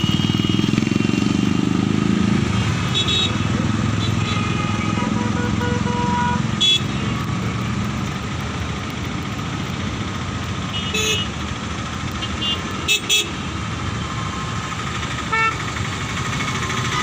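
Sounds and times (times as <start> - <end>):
car horn toots: 4.0 - 7.2.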